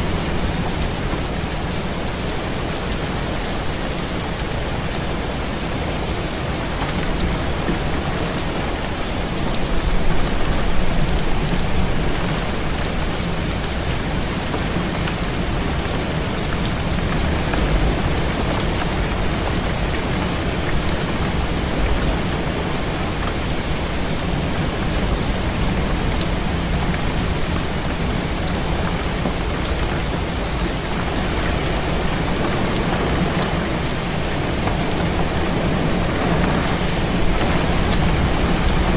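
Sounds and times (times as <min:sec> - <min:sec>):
heavy rain on a window: 0:00.0 - 0:38.9.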